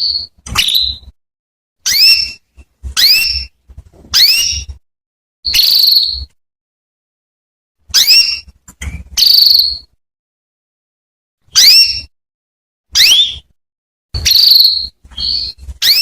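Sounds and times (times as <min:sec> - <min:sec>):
canary whistled call notes: 0:00.0 - 0:01.1, 0:01.8 - 0:02.4, 0:03.0 - 0:04.7, 0:05.5 - 0:06.4, 0:07.9 - 0:08.5, 0:09.2 - 0:09.9, 0:11.5 - 0:12.1, 0:12.9 - 0:13.5, 0:14.2 - 0:16.0.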